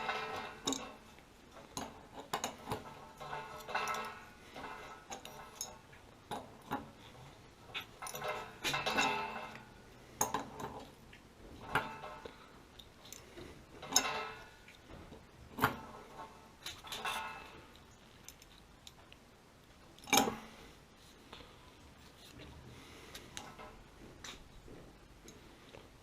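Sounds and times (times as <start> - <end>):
metal tools clinking: 0.0 - 11.0, 11.6 - 14.9, 15.6 - 19.0.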